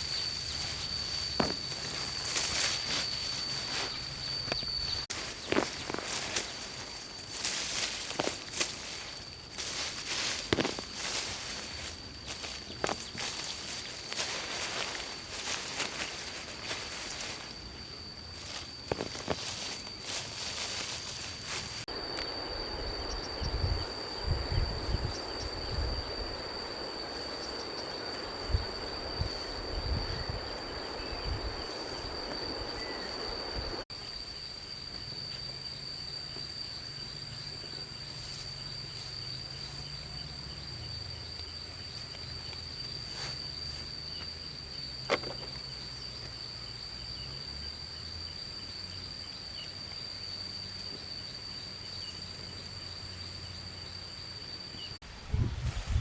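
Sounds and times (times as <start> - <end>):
rustling: 0.0 - 22.5
high insect drone: 0.0 - 56.0.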